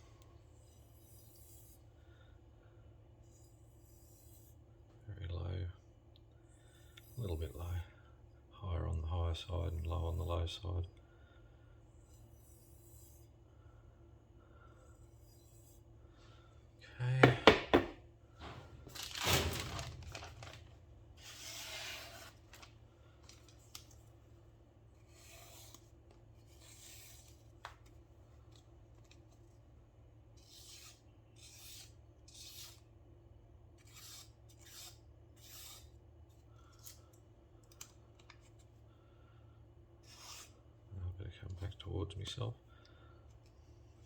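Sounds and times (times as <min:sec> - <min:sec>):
knife being stropped: 0:12.0 - 0:13.3, 0:21.2 - 0:22.7, 0:25.0 - 0:27.6, 0:30.4 - 0:32.8, 0:33.8 - 0:35.9, 0:40.0 - 0:40.6.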